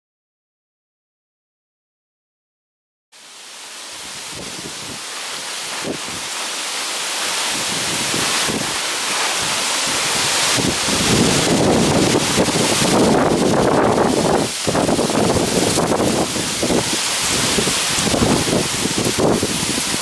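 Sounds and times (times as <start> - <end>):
gusty wind through trees: 3.2 - 20.0
leaves rustling: 3.2 - 20.0
wind buffeting microphone: 4.1 - 5.1, 5.7 - 6.4, 7.4 - 20.0.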